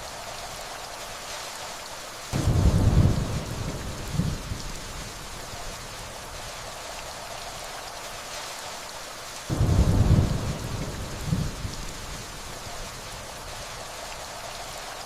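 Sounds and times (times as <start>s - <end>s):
steady rainfall: 0.0s - 15.0s
distant thunder rumble: 2.4s - 5.3s, 9.5s - 12.6s.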